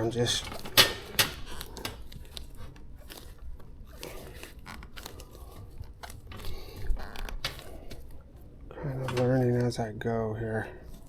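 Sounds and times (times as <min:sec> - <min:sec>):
hands working rubber tire on rim: 0:00.0 - 0:11.0.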